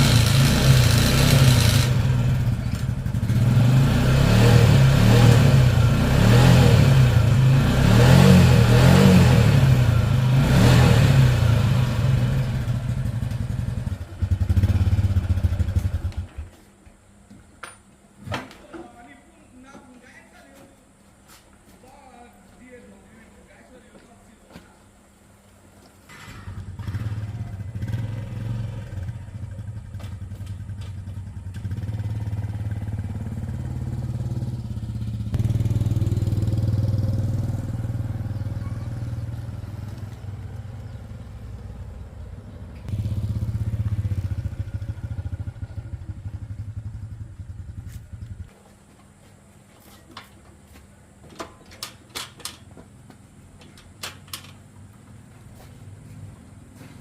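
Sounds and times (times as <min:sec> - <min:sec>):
motorcycle engine revving: 0:00.0 - 0:16.5, 0:26.2 - 0:48.6.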